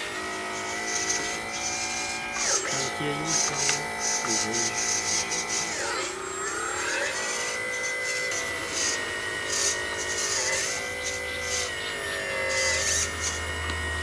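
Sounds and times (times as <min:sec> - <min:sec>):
toy truck motor whining: 0:00.0 - 0:14.0.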